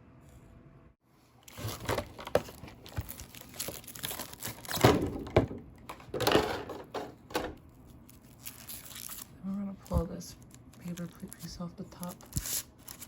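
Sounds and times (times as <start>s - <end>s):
packaging crinkling: 1.4s - 6.9s, 7.6s - 13.0s.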